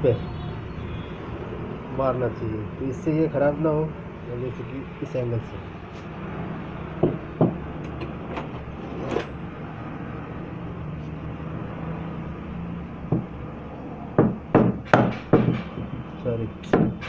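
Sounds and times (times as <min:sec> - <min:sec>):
metal tool knocked on wood: 0:14.2 - 0:15.8.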